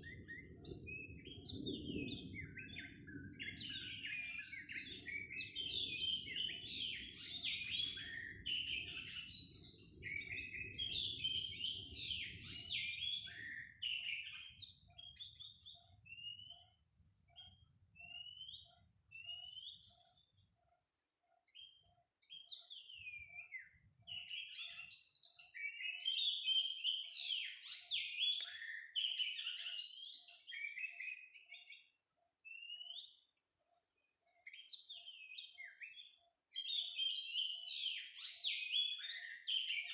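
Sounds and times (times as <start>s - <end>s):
bird singing whistled phrases: 0.0s - 16.8s, 17.4s - 20.2s, 21.6s - 31.8s, 32.5s - 33.2s, 34.3s - 39.9s.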